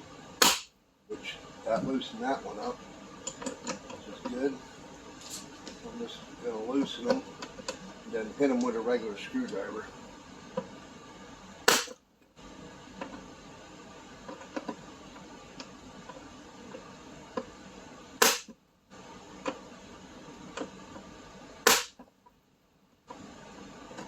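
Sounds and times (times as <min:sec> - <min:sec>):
hammer striking impact driver: 0:00.4 - 0:00.7, 0:11.7 - 0:12.0, 0:18.2 - 0:18.5, 0:21.6 - 0:22.0.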